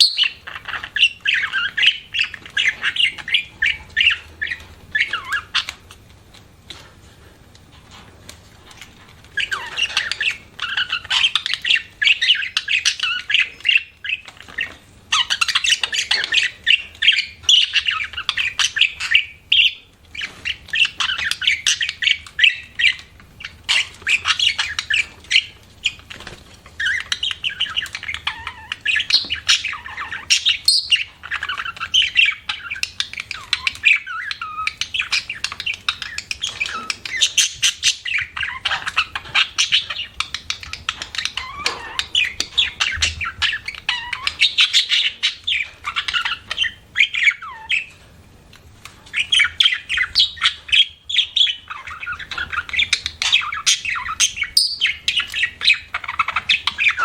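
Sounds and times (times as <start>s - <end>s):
budgerigar chattering: 49.1s - 57.0s.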